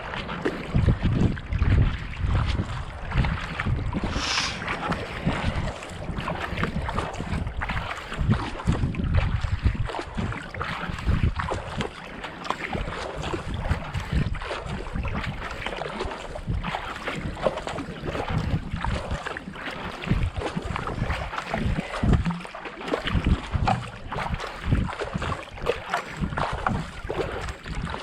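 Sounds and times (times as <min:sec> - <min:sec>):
wind buffeting microphone: 0:00.0 - 0:11.9, 0:12.7 - 0:19.3, 0:19.9 - 0:28.0
paddle strokes splashing water: 0:00.0 - 0:28.0.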